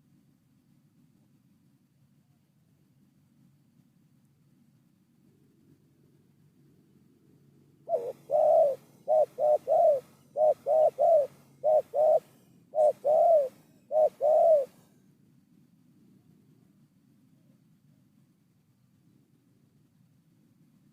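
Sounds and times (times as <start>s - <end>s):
dove cooing: 7.9s - 14.8s.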